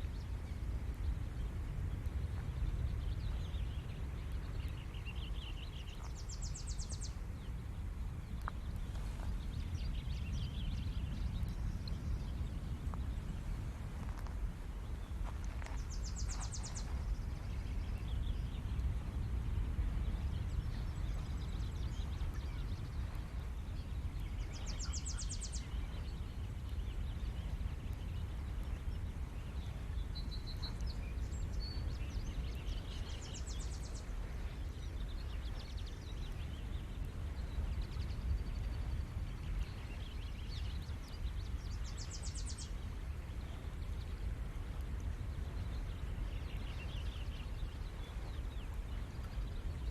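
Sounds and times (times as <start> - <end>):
bird chirps: 15.3 - 18.6, 20.4 - 36.8.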